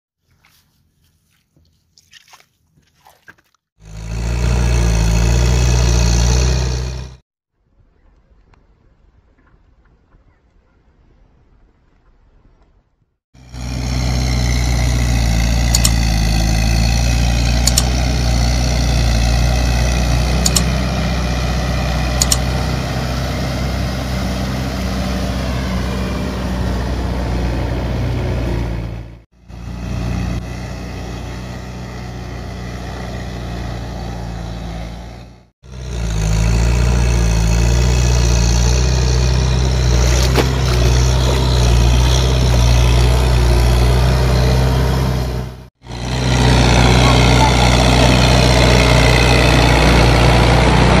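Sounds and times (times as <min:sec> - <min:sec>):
tractor engine running: 0:03.8 - 0:07.2, 0:13.4 - 0:51.0
sharp clicks: 0:15.6 - 0:16.1, 0:17.6 - 0:18.0, 0:20.4 - 0:20.8, 0:22.2 - 0:22.5.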